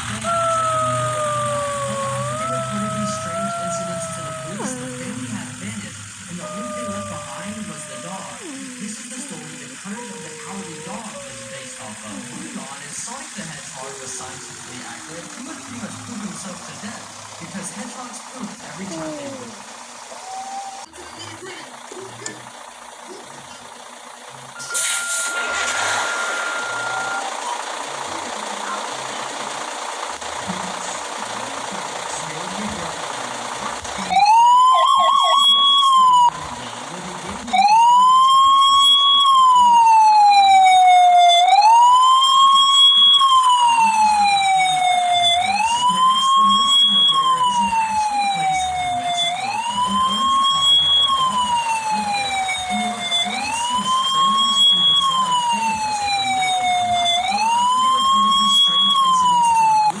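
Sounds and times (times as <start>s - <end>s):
electronic siren yelp and wail: 0.0s - 16.1s, 18.9s - 19.6s, 20.2s - 20.9s, 24.6s - 27.7s, 34.1s - 36.4s, 37.5s - 60.0s
low engine rumble: 0.0s - 60.0s.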